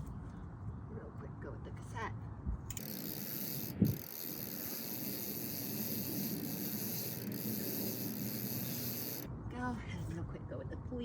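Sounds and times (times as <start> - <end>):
bicycle freehub ratcheting: 2.7 - 9.3.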